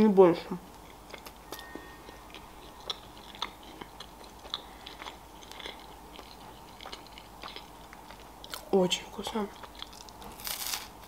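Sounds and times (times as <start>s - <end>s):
person chewing flaky pastry: 0.7s - 11.0s.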